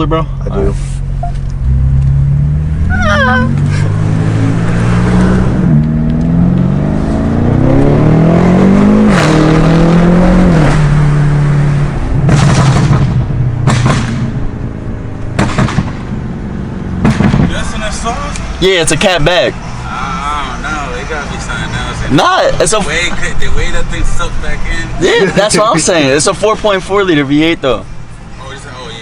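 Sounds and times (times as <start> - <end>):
car engine accelerating: 0.0 - 28.1
exhaust pops and crackles: 12.2 - 14.4, 15.2 - 16.2, 17.0 - 18.4.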